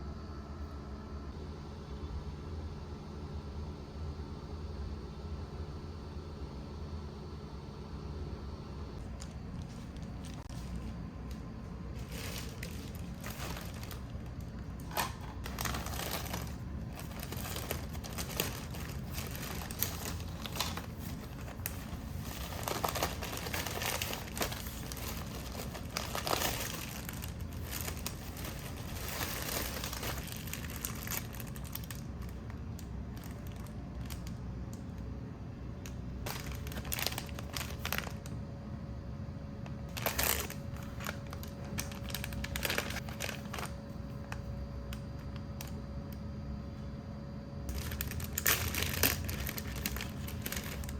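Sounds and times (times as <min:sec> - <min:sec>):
steady low hum: 0:00.0 - 0:50.9
packaging crinkling: 0:09.0 - 0:35.0, 0:35.8 - 0:38.4, 0:39.7 - 0:46.2, 0:47.7 - 0:50.9.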